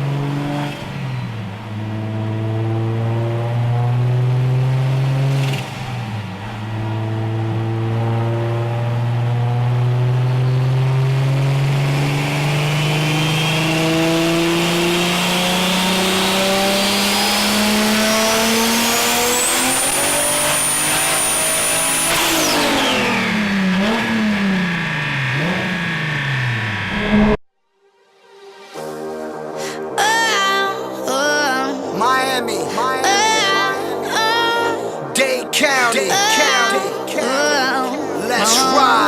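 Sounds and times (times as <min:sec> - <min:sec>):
car engine pulling hard: 0:00.0 - 0:27.4.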